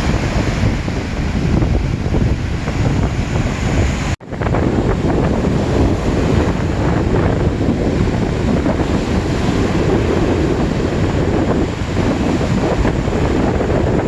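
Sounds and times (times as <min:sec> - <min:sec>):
waves washing onto shore: 0:00.0 - 0:14.0
wind buffeting microphone: 0:00.0 - 0:14.0.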